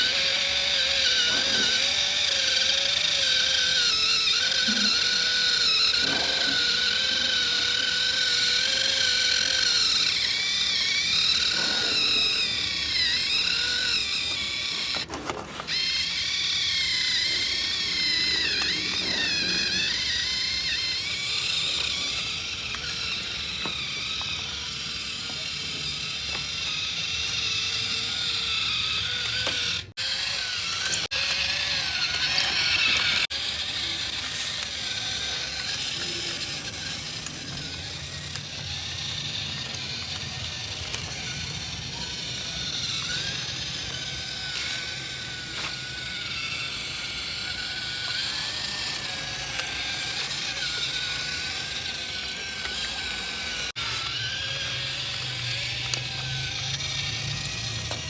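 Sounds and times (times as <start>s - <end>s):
toy motor whirring: 0.0s - 58.0s
clicks: 48.0s - 58.0s.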